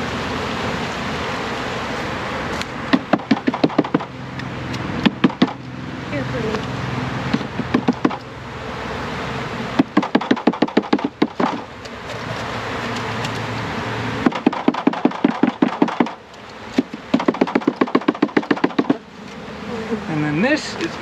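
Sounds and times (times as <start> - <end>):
bees humming: 0.0 - 21.0
quick knocking on bee package: 2.9 - 4.1, 5.0 - 5.6, 7.3 - 8.2, 9.8 - 11.7, 14.3 - 16.2, 16.8 - 19.0.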